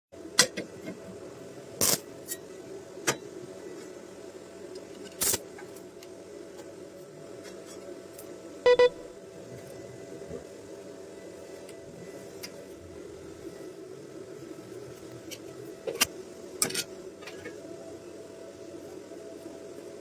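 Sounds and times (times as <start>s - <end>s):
steady hum: 0.2s - 20.0s
double ringing tone: 8.7s - 9.1s.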